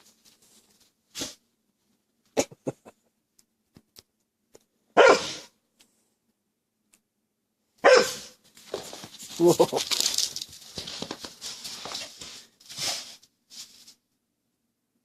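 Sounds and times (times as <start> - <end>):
dog barking: 5.0 - 5.5, 7.8 - 8.4.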